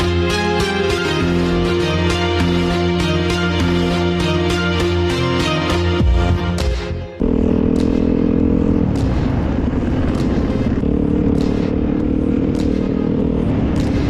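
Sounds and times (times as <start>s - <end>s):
noisy rush: 7.2s - 14.0s
small motorbike engine running: 7.2s - 14.0s.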